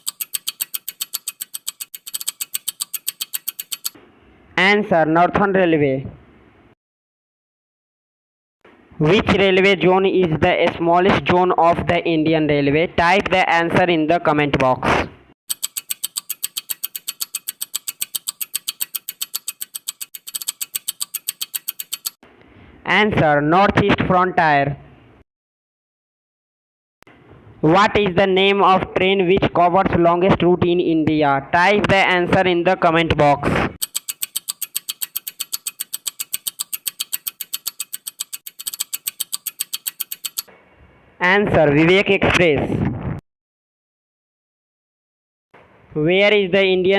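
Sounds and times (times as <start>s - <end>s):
rapid clock-like ticking: 0.0s - 4.0s, 15.5s - 22.2s, 33.8s - 40.5s
rapid countdown timer ticking: 33.8s - 40.5s.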